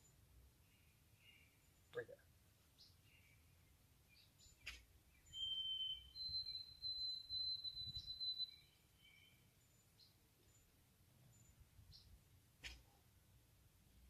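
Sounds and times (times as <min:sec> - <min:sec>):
bird singing whistled notes: 0:04.1 - 0:10.2.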